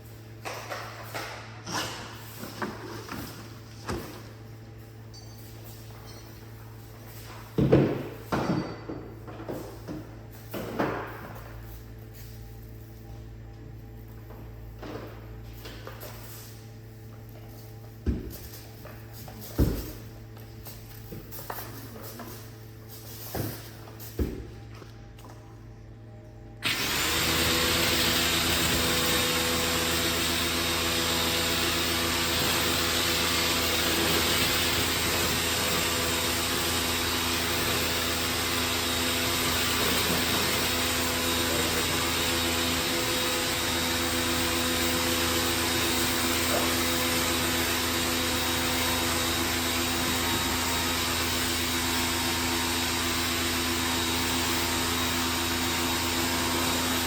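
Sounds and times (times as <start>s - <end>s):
motor-driven machine humming: 26.4s - 57.0s.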